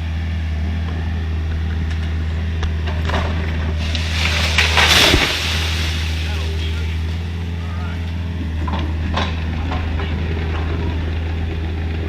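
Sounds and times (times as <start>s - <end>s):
excavator diesel engine running: 0.0s - 12.0s
crackling crunching burst: 3.7s - 7.6s.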